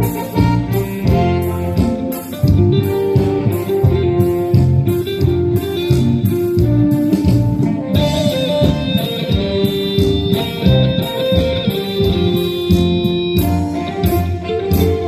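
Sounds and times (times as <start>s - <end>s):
guitar playing: 0.0s - 15.0s
higher melody line: 0.0s - 15.0s
steady drum beat: 0.0s - 15.0s.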